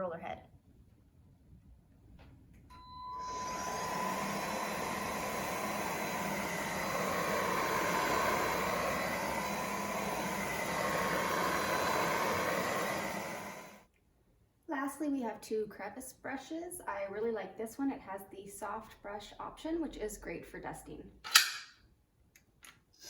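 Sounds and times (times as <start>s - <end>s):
stick vacuum running: 2.7s - 13.8s.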